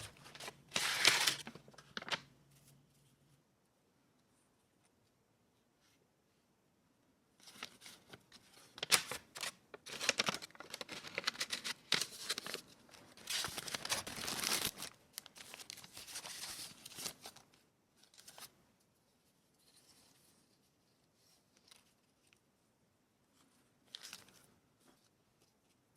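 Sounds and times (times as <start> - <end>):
paper tearing and crinkling: 0.0 - 2.2, 7.5 - 17.4.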